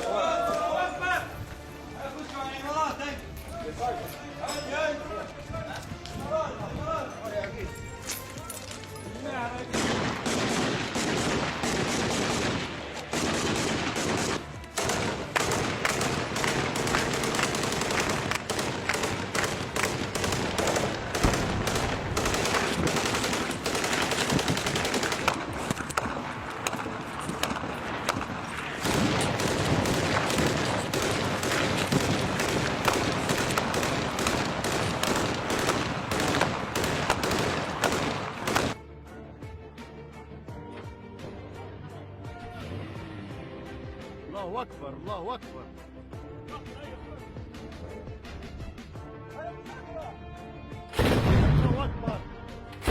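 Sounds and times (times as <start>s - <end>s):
automatic gunfire: 9.7s - 26.8s, 27.4s - 38.8s, 51.0s - 51.6s.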